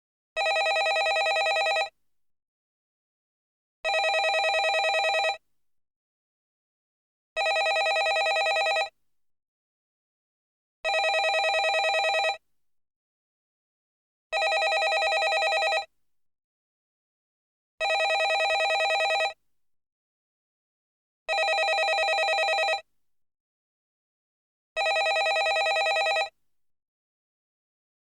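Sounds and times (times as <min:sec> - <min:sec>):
landline telephone ringing: 0:00.4 - 0:01.9, 0:03.9 - 0:05.4, 0:07.4 - 0:08.9, 0:10.9 - 0:12.4, 0:14.4 - 0:15.9, 0:17.8 - 0:19.4, 0:21.3 - 0:22.8, 0:24.8 - 0:26.3.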